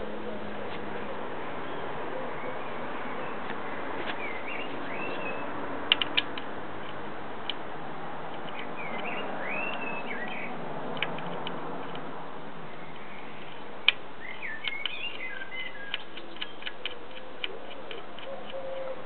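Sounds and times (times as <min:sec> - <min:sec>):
songbird chirping: 0:00.2 - 0:05.7, 0:08.3 - 0:10.6, 0:12.6 - 0:19.0.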